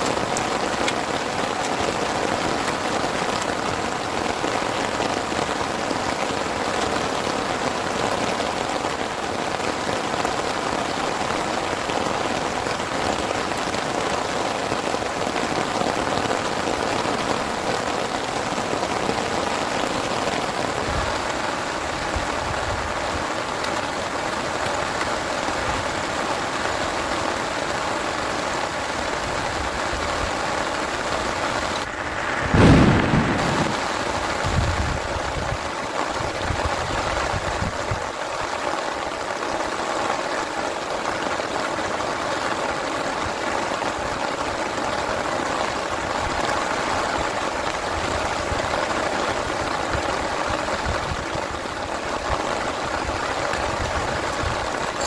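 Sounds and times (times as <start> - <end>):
heavy rain falling: 0.0 - 55.0
low rumbles: 31.2 - 35.1.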